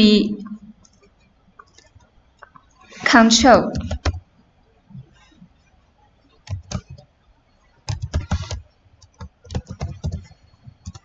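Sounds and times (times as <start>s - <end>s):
keyboard keystrokes: 3.7s - 4.2s, 6.5s - 7.0s, 7.9s - 11.0s.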